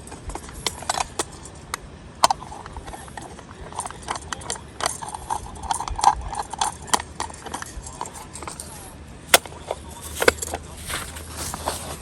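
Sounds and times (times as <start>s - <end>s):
hard objects clacking and knocking: 0.0s - 12.0s.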